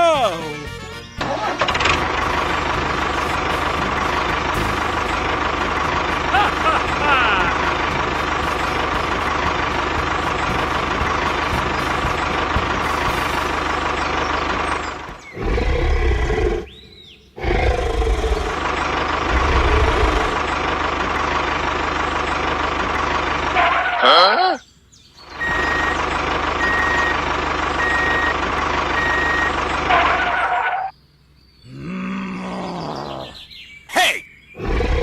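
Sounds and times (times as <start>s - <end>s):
motor running: 1.4s - 16.8s, 17.4s - 23.9s, 25.3s - 30.9s.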